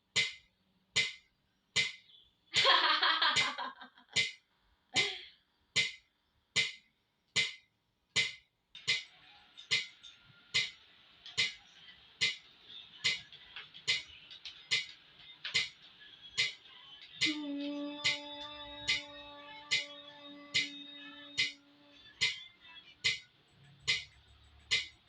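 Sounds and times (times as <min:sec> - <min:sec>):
metronome ticking: 0:00.2 - 0:02.0, 0:06.6 - 0:10.0, 0:10.6 - 0:11.6, 0:17.2 - 0:21.6, 0:23.0 - 0:25.0.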